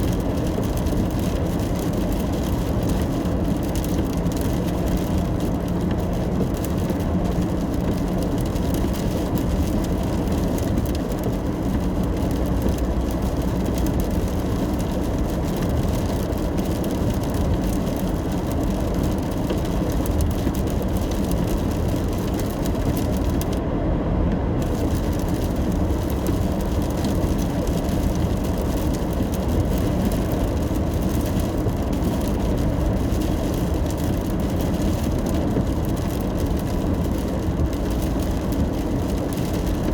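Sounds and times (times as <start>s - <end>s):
car driving on wet road: 0.0s - 39.9s
rain hiss: 24.6s - 39.9s.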